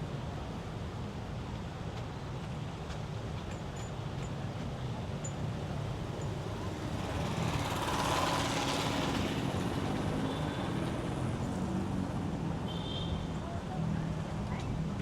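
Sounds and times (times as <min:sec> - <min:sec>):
road traffic rumble: 0:04.0 - 0:15.0
vehicle passing close by: 0:06.4 - 0:12.2.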